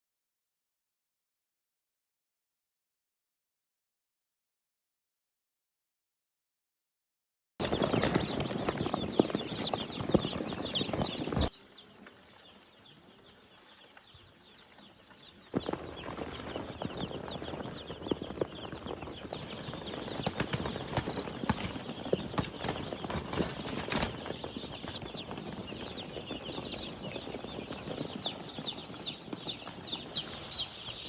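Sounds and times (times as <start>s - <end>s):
chicks peeping: 7.6s - 31.0s.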